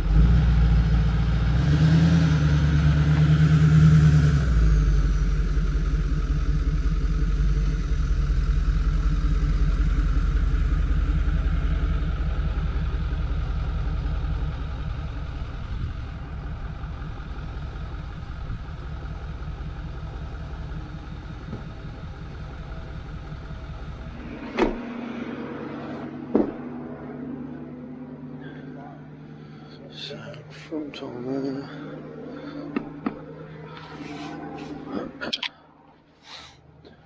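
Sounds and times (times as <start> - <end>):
truck engine idling: 2.1 - 37.0
sharp knocks: 26.3 - 26.6.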